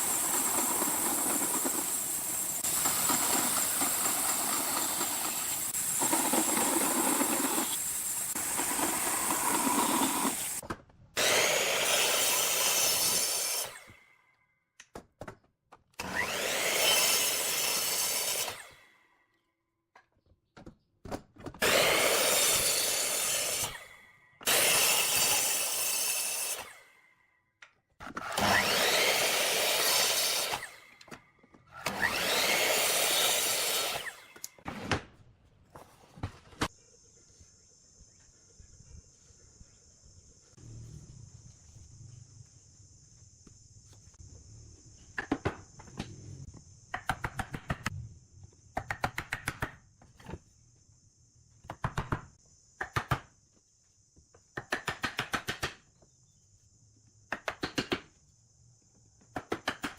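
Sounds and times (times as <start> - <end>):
power tool cutting wood: 0.0 - 10.6, 11.2 - 14.0, 16.0 - 18.8, 21.6 - 26.9, 28.1 - 34.6.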